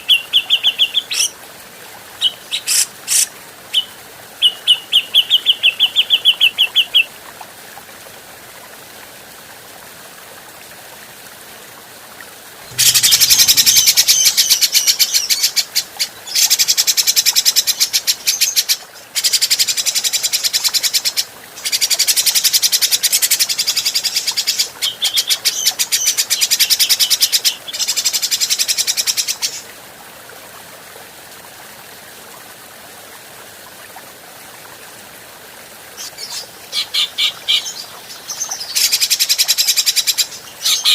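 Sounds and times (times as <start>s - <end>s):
bird scratchy chattering calls: 2.5s - 3.3s, 12.7s - 15.6s.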